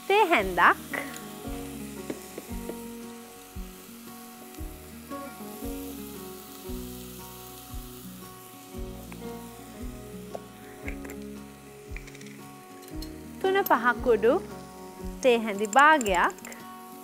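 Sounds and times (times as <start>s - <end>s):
paste sizzling in hot oil: 0.0s - 17.0s
background music with soft beat: 0.4s - 17.0s.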